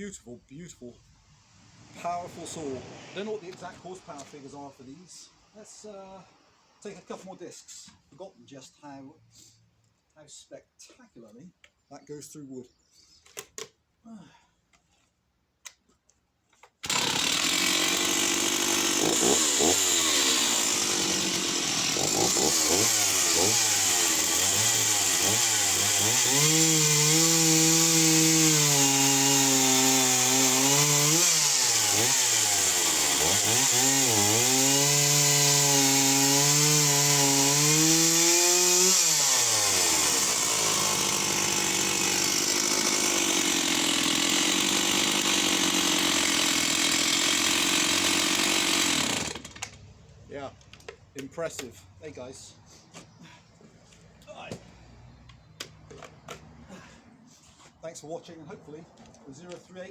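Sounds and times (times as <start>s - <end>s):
chainsaw cutting wood: 1.7s - 5.0s, 16.6s - 49.9s.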